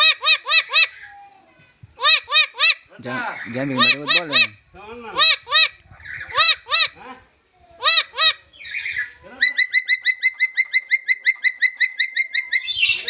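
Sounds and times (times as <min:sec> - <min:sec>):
parrot whistled calls: 0:07.8 - 0:13.0.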